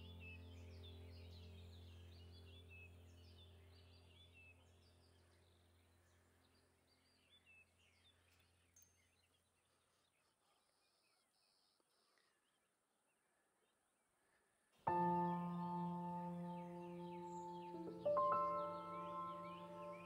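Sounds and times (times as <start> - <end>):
faint songbirds chirping: 0.0 - 20.0
low steady hum: 14.9 - 20.0.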